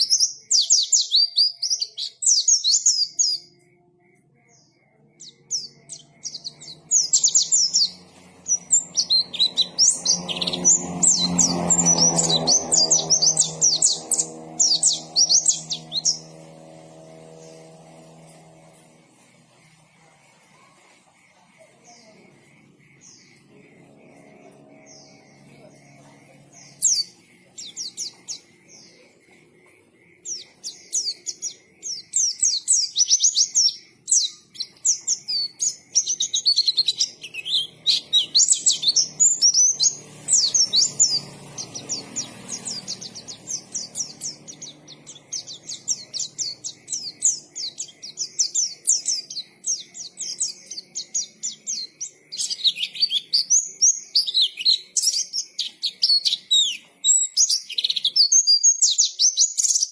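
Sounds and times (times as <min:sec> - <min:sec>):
bird chirping and twittering: 0:00.0 - 0:59.9.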